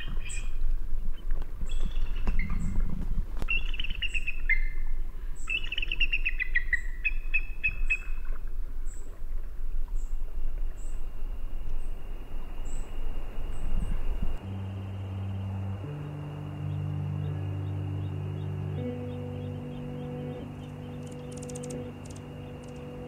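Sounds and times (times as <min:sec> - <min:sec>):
steady low rumble: 0:00.0 - 0:05.5, 0:08.0 - 0:23.0
birds singing: 0:00.0 - 0:09.2, 0:09.9 - 0:23.0
steady low tones: 0:08.4 - 0:23.0.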